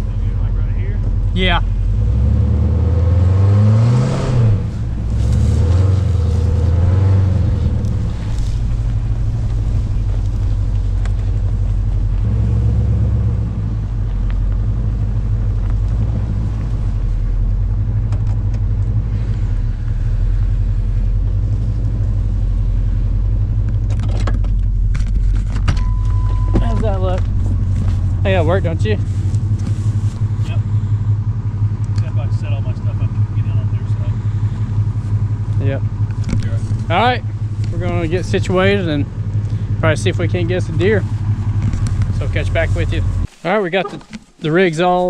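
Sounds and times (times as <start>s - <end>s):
truck engine revving and running: 0.0s - 43.3s.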